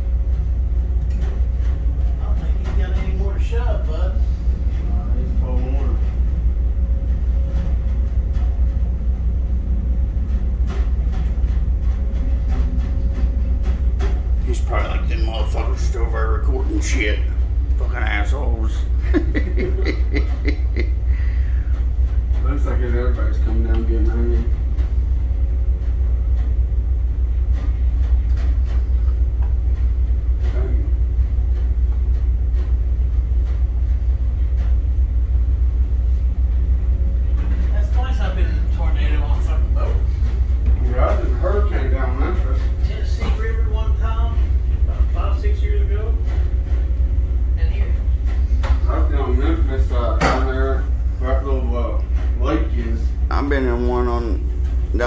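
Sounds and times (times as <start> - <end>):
deep diesel engine rumble: 0.0 - 55.0
faint knocks and clicks: 0.8 - 3.2, 21.5 - 35.8.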